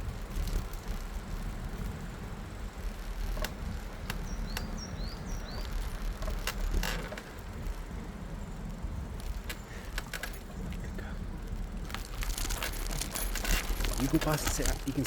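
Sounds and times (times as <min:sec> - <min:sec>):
wind rumble on microphone: 0:00.0 - 0:15.0
small bird chirping: 0:04.0 - 0:06.4.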